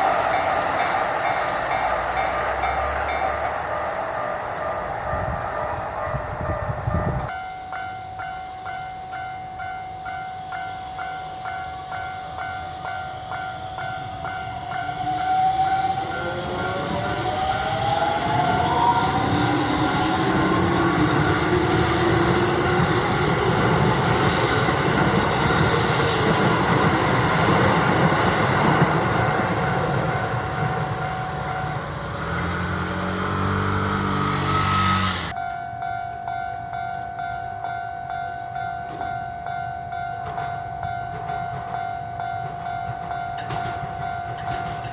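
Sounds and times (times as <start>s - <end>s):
electric train passing: 0.0s - 44.9s
train motor whine: 11.3s - 35.4s
level crossing bell clanging: 35.3s - 44.9s.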